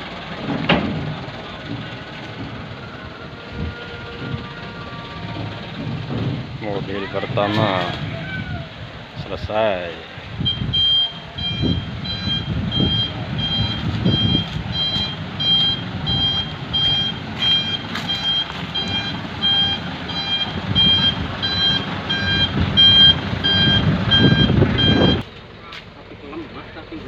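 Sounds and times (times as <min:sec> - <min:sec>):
diesel engine running: 0:00.0 - 0:27.0
reversing alarm beeping: 0:10.4 - 0:25.2.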